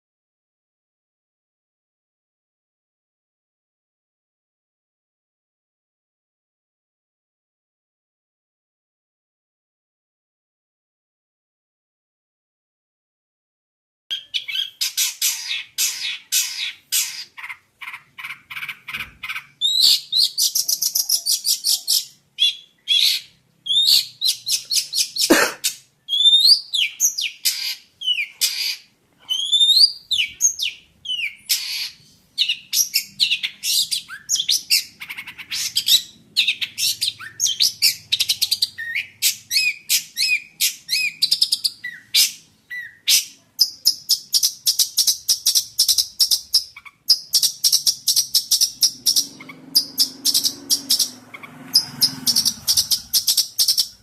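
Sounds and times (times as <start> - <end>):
shrike singing varied song: 26.1 - 54.0.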